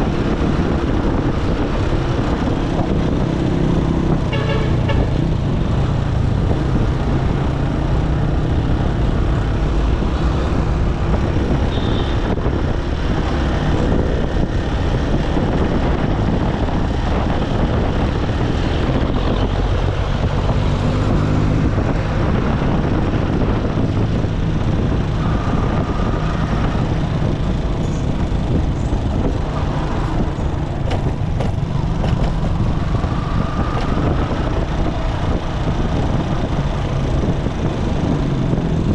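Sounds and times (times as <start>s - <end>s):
surrounding traffic: 0.0s - 38.9s
wind and road noise: 0.0s - 38.9s
motorcycle engine running: 25.9s - 38.9s.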